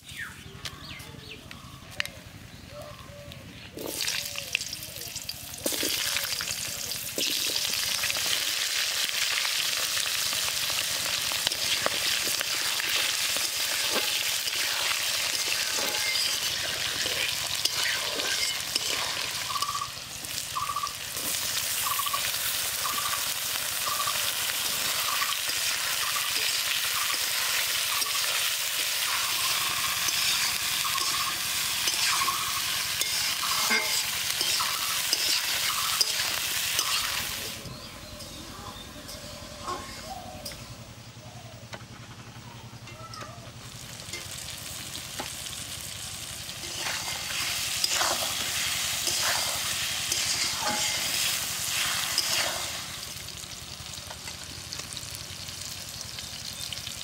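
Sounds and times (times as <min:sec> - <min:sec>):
potato wedges sizzling in oil: 0:03.8 - 0:37.6, 0:43.7 - 0:57.0
spatula scraping a metal wok: 0:11.5 - 0:19.8, 0:29.0 - 0:37.5, 0:46.6 - 0:52.8.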